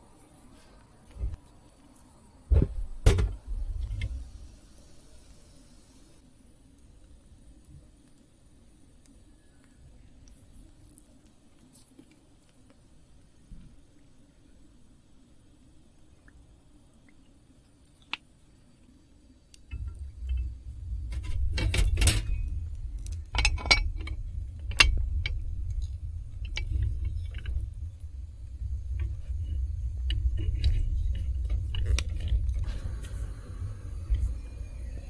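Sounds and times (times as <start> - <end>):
low rumble: 19.7 - 35.0.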